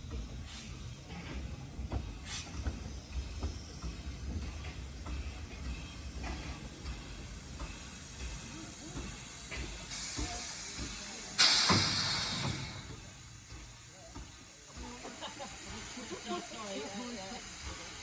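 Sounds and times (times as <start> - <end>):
steam hissing: 0.0 - 18.0
loud blast of steam: 9.8 - 13.8.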